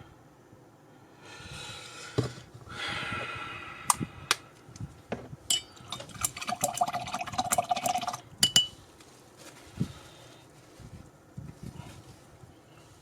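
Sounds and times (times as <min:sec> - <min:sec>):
glass clinks: 0:05.5 - 0:05.8, 0:08.4 - 0:08.8.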